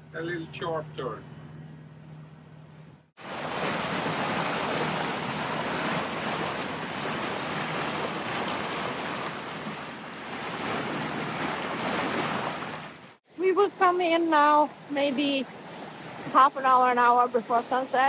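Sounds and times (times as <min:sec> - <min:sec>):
water rushing along a hull: 0:00.0 - 0:18.0
wind buffeting the microphone: 0:03.2 - 0:12.9.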